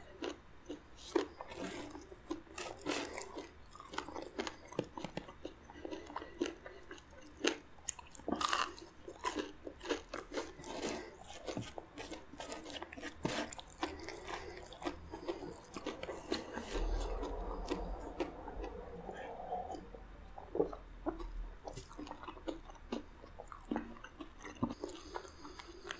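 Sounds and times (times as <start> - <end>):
crunchy bites and chewing: 0.1 - 19.3, 20.6 - 25.9
person drinking water: 10.2 - 25.9.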